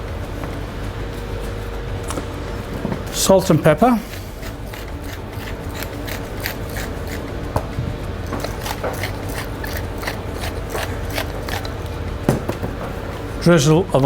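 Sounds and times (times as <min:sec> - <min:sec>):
steady low hum: 0:00.0 - 0:14.0
pepper mill grinding clicks: 0:04.1 - 0:07.3, 0:08.3 - 0:11.8.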